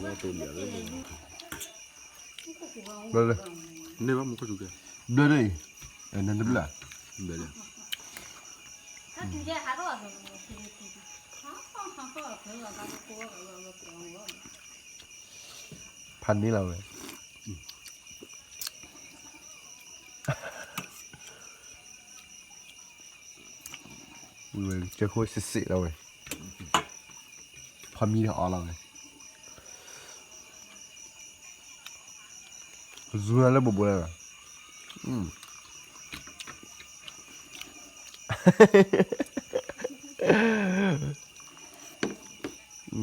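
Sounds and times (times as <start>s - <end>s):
crickets chirring: 0.0s - 43.0s.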